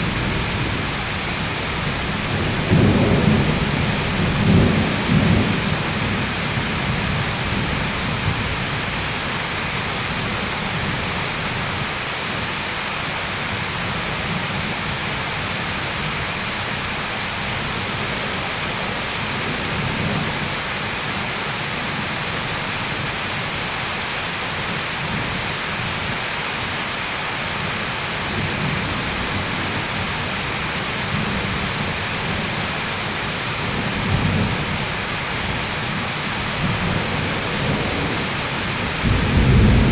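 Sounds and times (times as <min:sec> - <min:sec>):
thunder rumbling: 0:00.0 - 0:09.4, 0:33.3 - 0:39.9
heavy rain hissing: 0:00.0 - 0:39.9.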